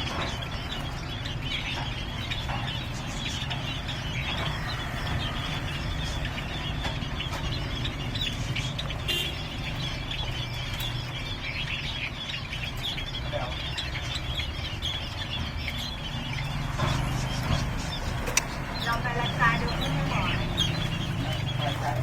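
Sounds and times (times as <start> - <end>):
cage birds chirping: 0.0 - 22.0
loud bird call: 3.3 - 13.9.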